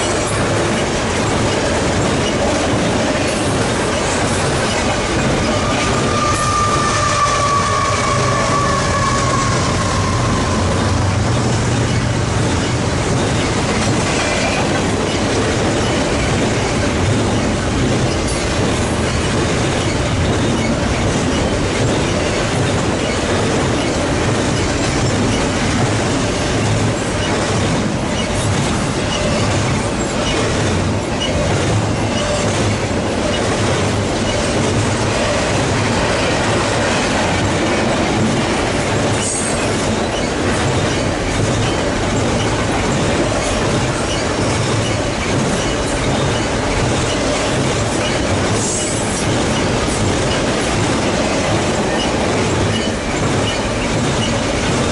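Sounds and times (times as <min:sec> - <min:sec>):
train wheels rumbling on rails: 0:00.0 - 0:54.9
wheels clacking over rail joints: 0:00.0 - 0:54.9
wheel squeal: 0:04.0 - 0:11.1, 0:29.0 - 0:30.6, 0:31.2 - 0:33.5, 0:43.3 - 0:49.7, 0:51.9 - 0:54.5.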